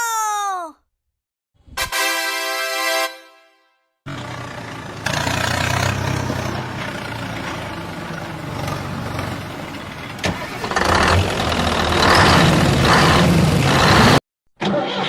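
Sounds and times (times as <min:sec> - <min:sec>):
engine humming: 0:04.1 - 0:14.2.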